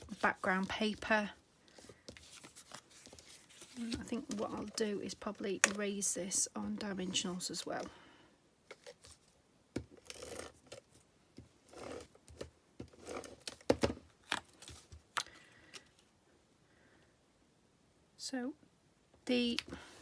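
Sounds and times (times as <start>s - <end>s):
paper rustling: 0.0s - 6.0s.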